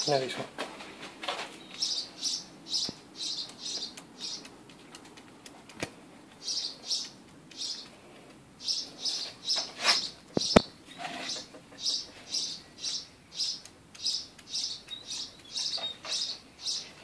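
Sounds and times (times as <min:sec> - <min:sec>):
bird chirping: 0:01.5 - 0:05.3, 0:06.3 - 0:08.0, 0:08.6 - 0:17.0
faint sharp clicks: 0:02.8 - 0:08.4, 0:13.4 - 0:15.7.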